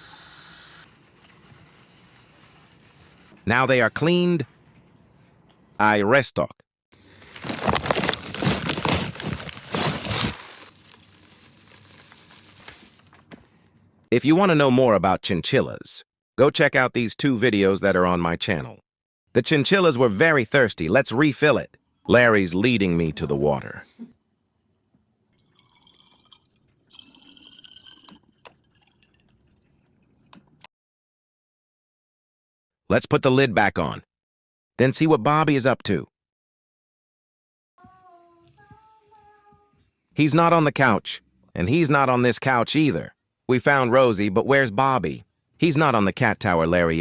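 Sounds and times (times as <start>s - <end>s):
water running into a bottle: 7.0s - 13.1s, 25.4s - 30.4s
pet food bag crinkling: 7.0s - 13.2s.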